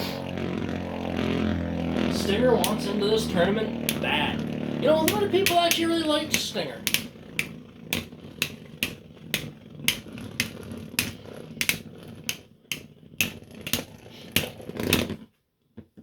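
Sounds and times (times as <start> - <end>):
spinning tops whirring: 0.0 - 15.2
spinning tops clacking together: 5.0 - 15.2.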